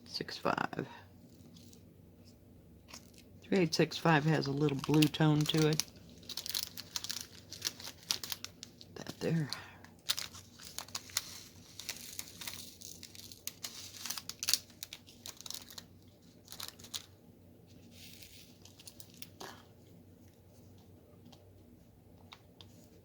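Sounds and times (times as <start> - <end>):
plastic bag crinkling: 2.9 - 19.6.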